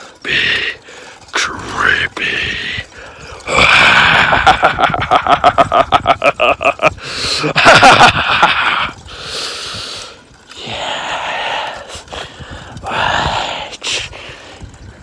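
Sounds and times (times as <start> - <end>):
drawn-out vocal sound: 0.0 - 5.6, 8.2 - 14.7
man cackling laugh: 3.4 - 9.0.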